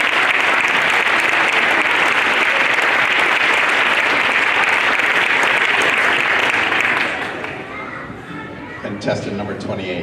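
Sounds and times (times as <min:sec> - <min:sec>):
children applauding: 0:00.0 - 0:08.0.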